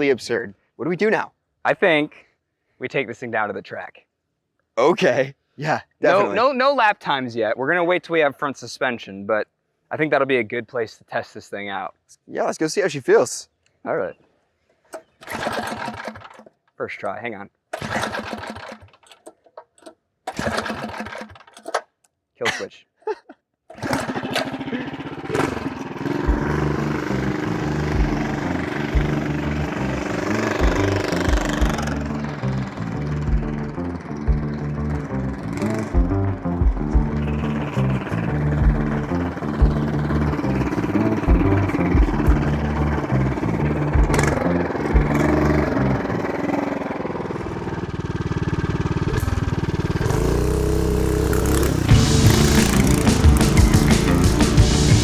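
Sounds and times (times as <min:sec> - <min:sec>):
small engine running under load: 0:15.0 - 0:16.5, 0:17.8 - 0:19.2, 0:20.3 - 0:21.8, 0:23.7 - 0:55.0
background music: 0:26.1 - 0:46.4, 0:51.4 - 0:55.0.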